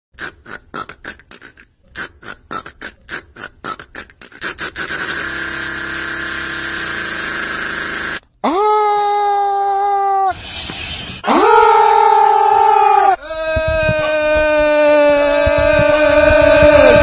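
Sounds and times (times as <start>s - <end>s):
person laughing: 13.3s - 17.0s.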